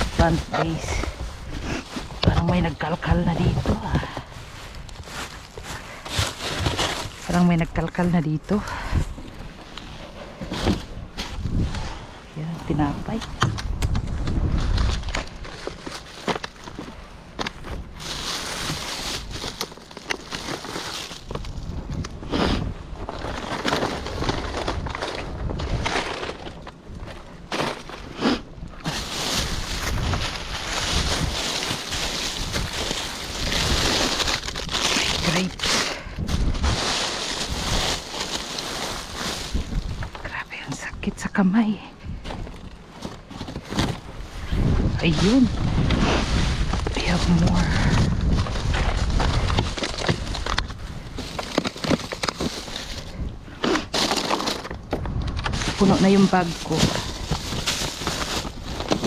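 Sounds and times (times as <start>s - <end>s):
plastic bags rustling: 0.0s - 13.3s, 14.1s - 41.3s, 42.2s - 59.0s
wind buffeting microphone: 10.5s - 15.4s, 28.5s - 40.3s, 42.0s - 51.5s.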